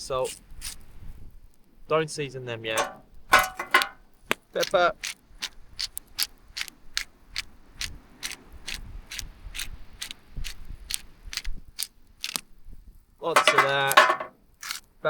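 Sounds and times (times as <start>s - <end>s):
pepper grinder clicking: 4.6s - 12.4s.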